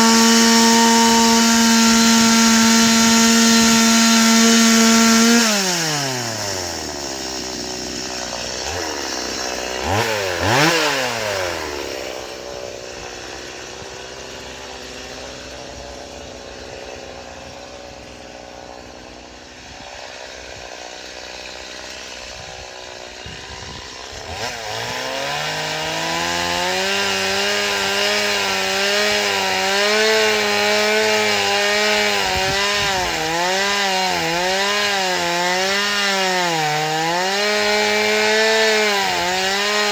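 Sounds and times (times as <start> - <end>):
chainsaw cutting wood: 0.0 - 39.9
chainsaw idling and revving: 0.0 - 39.9.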